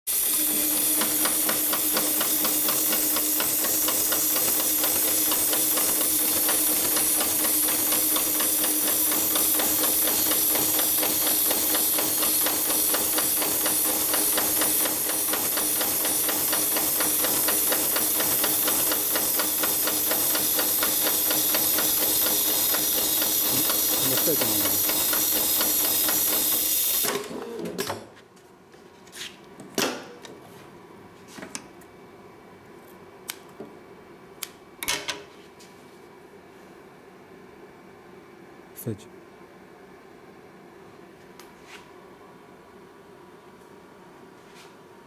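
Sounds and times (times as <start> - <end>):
industrial sewing machine running: 0.1 - 27.6.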